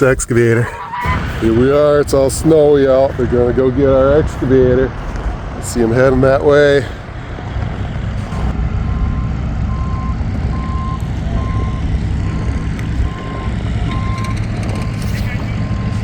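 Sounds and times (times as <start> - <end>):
diesel engine rumble: 0.0 - 16.0
reversing alarm beeping: 4.3 - 16.0.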